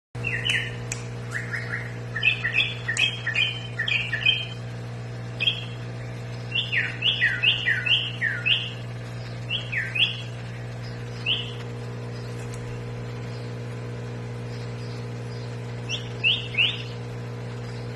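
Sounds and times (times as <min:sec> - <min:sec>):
bird singing whistled notes: 0:00.2 - 0:04.6, 0:05.4 - 0:05.8, 0:06.4 - 0:12.4, 0:14.5 - 0:17.0.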